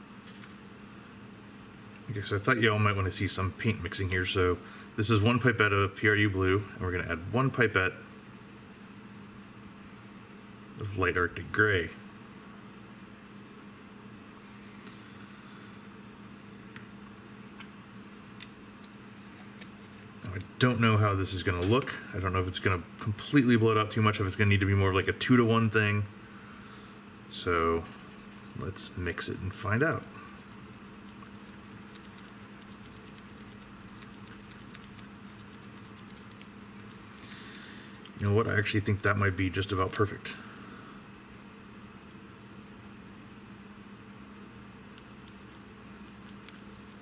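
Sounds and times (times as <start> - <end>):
faint low machine hum: 0.0 - 47.0
stirrer ticking against plastic cup: 31.0 - 37.0.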